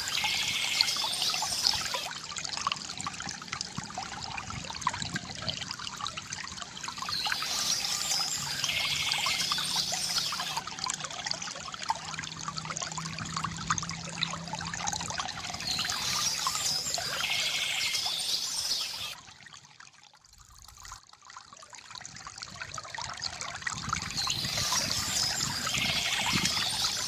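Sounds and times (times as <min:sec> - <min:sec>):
birds chirping: 0:00.0 - 0:02.1, 0:07.0 - 0:10.6, 0:15.5 - 0:19.2, 0:24.1 - 0:27.0
water trickling into basin: 0:00.0 - 0:27.0.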